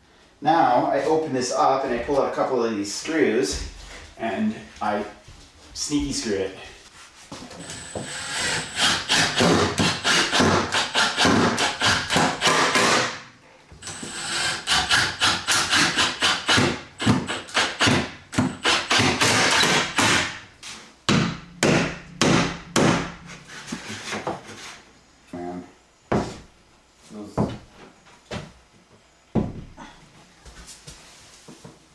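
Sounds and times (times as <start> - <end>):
sharp knocks on wood: 21.1 - 24.5.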